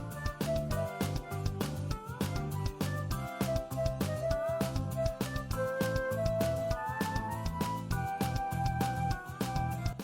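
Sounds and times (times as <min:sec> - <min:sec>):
gentle instrumental music: 0:00.0 - 0:10.0.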